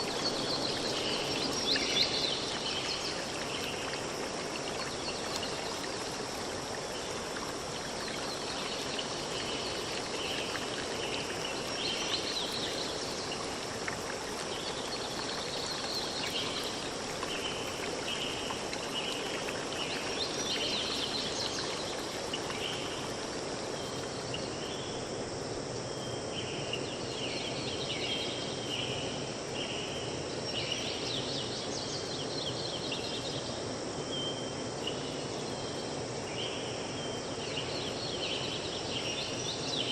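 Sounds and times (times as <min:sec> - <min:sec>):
background hiss: 0:00.0 - 0:39.9
insect drone: 0:00.0 - 0:39.9.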